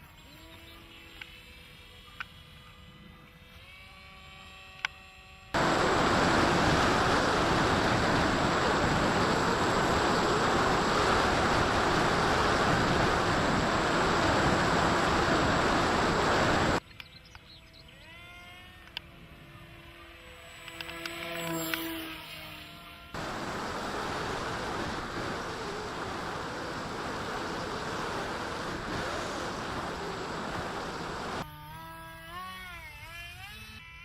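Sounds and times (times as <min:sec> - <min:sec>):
faint motor whine: 0:00.0 - 0:34.0
loud hiss with high whistle: 0:23.2 - 0:31.4.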